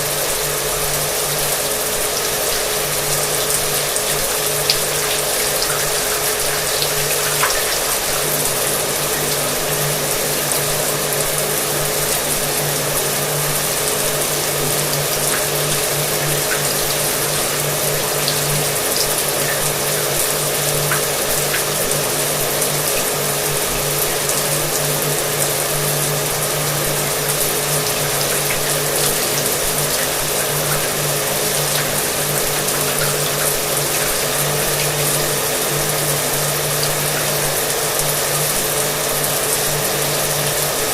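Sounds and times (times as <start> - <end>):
hair dryer humming: 0.0 - 23.2
shower water running: 0.0 - 40.9.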